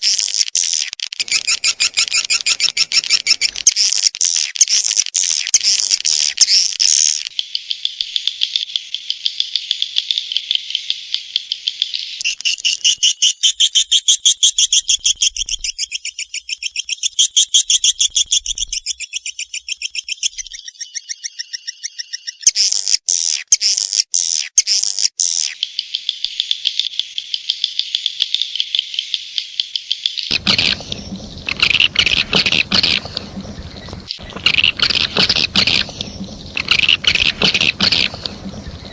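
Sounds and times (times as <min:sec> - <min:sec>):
swiftlet calls twittering: 0:01.2 - 0:03.6, 0:30.3 - 0:38.9
sharp clicks: 0:30.3 - 0:38.9.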